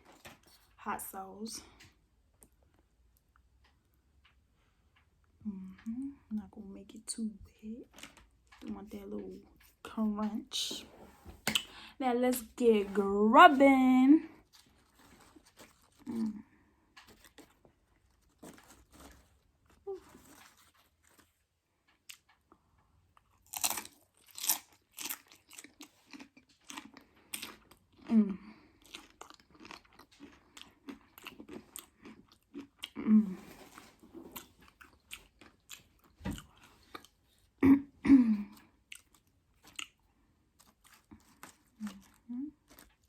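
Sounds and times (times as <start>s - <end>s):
crunching and chewing chips: 7.6s - 9.9s, 14.3s - 37.6s, 38.4s - 43.0s.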